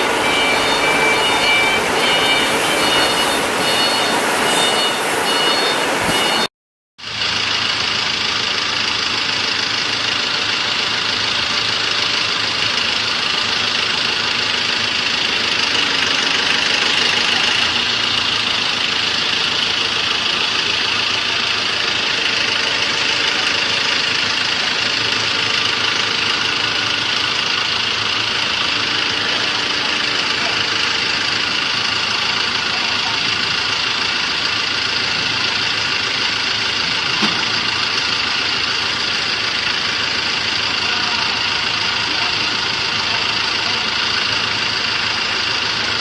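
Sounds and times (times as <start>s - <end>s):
constant high whine: 0.0s - 6.5s
diesel generator engine drone: 0.0s - 46.0s.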